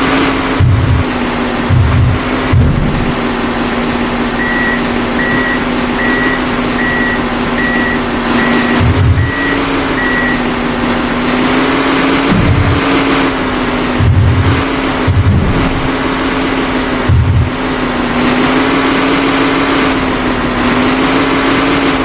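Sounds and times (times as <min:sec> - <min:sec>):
diesel engine running: 0:00.0 - 0:22.0
vehicle reversing alarm beeping: 0:03.9 - 0:11.6.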